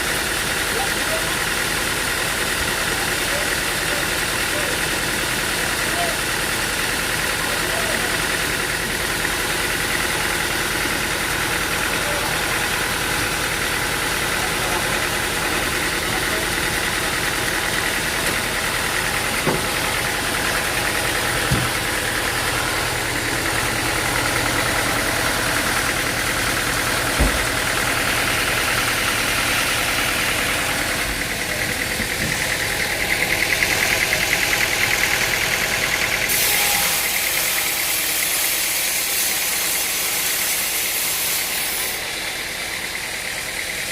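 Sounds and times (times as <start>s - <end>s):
engine-driven machine running: 0.0s - 43.9s
sharp knocks: 21.4s - 21.9s.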